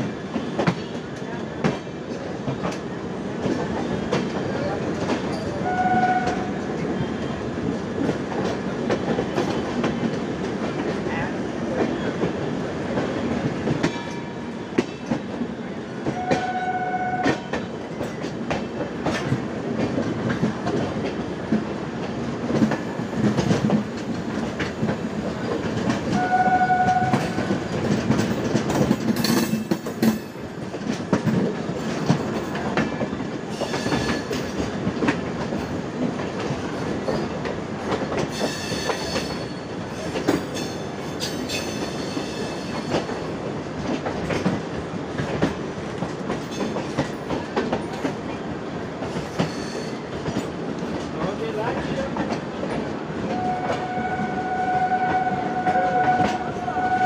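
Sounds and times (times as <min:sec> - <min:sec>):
train rumble: 0:00.0 - 0:57.0
wheels clacking over rail joints: 0:17.2 - 0:54.0
short horn-like tone: 0:53.4 - 0:57.0.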